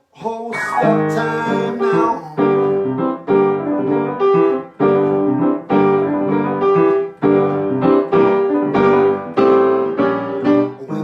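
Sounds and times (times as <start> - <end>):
piano chords ringing: 0.5 - 11.0.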